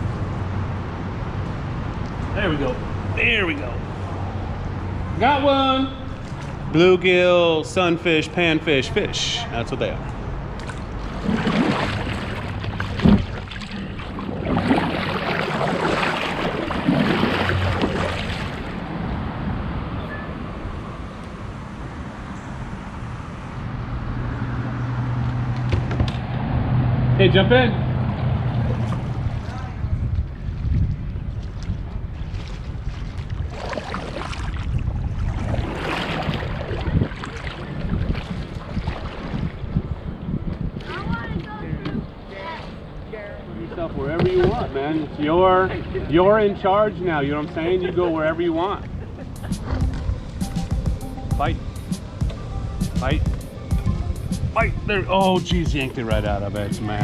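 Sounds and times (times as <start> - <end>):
water splashing and sloshing: 0.0 - 22.1, 28.0 - 57.0
water splashing around a kayak: 6.1 - 6.8, 10.5 - 19.6, 28.2 - 43.2
wind on microphone: 27.9 - 43.0.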